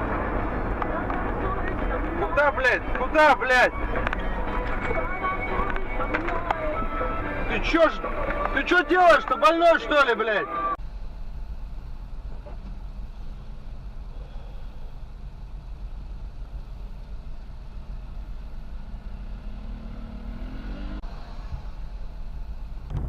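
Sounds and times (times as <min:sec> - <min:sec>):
road rumble: 0:00.0 - 0:23.0
vehicle engine running: 0:00.0 - 0:23.0.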